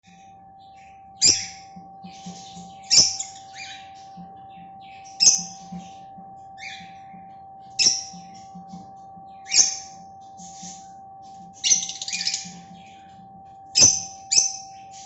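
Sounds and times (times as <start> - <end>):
soft bird chirps: 0.1 - 15.0
bird screeching calls: 11.6 - 12.6.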